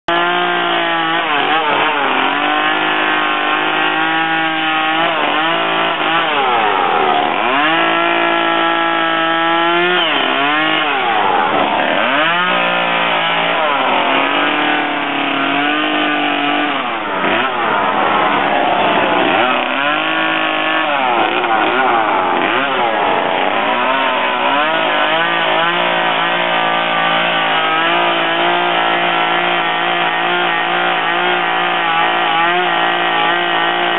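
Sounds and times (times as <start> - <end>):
chainsaw revving cutting wood: 0.1 - 33.9.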